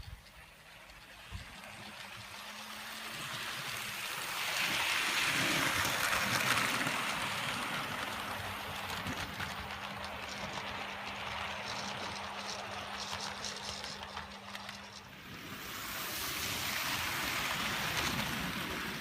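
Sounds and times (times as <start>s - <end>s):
model train wheels hissing on rail: 0.0s - 19.0s.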